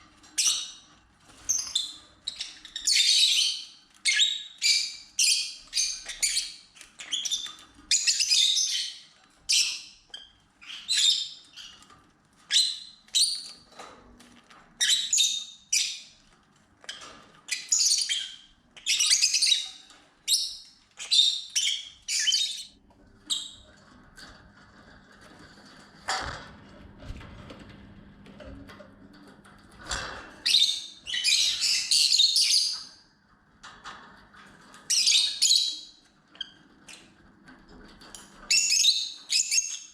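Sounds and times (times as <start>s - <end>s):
lovebirds chirping and squawking: 0.3s - 11.9s, 12.5s - 13.7s, 14.8s - 16.2s, 16.8s - 23.7s, 29.9s - 33.0s, 34.9s - 37.1s, 38.5s - 39.9s.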